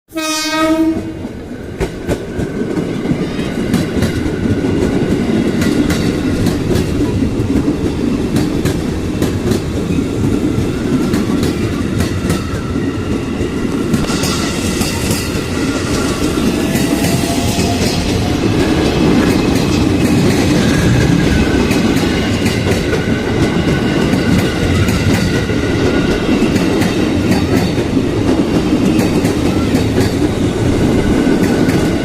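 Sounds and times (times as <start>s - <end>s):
train horn blast: 0.1s - 1.3s
train wheels clacking over rails: 0.7s - 32.0s.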